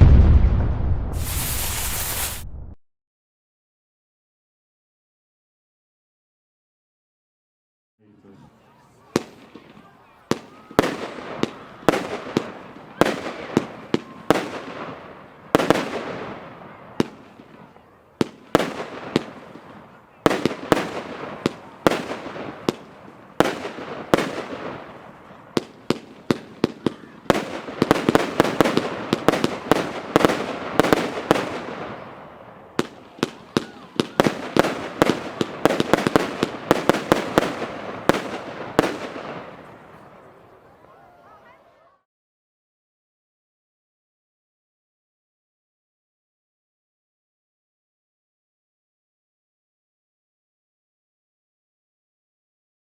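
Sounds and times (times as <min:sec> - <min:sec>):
firework bangs: 0:00.0 - 0:02.8, 0:09.1 - 0:40.2.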